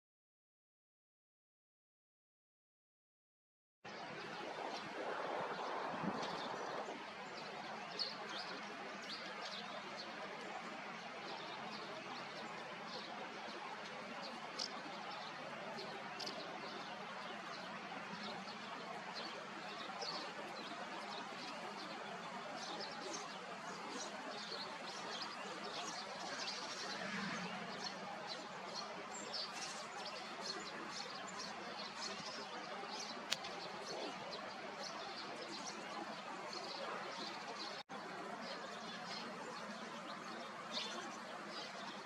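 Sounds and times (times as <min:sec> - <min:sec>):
small birds chirping: 0:13.8 - 0:37.8.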